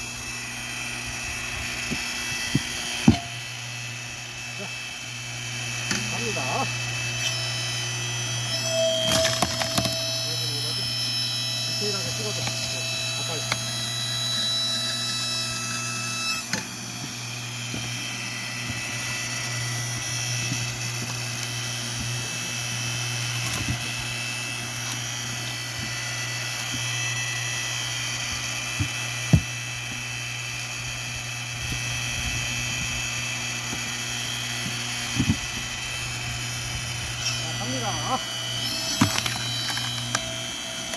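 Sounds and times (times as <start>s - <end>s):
high pump whine: 0.0s - 40.9s
hydraulic power unit humming: 0.0s - 40.9s.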